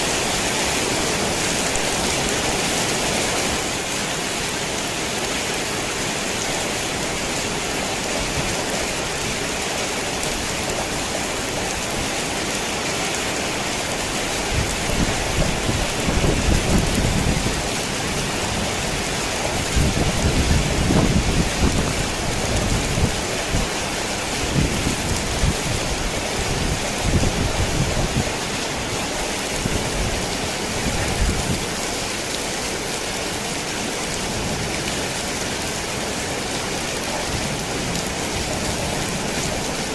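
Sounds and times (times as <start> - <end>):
rain on a tin roof: 0.0 - 39.9
thunder rumbling: 14.5 - 23.8.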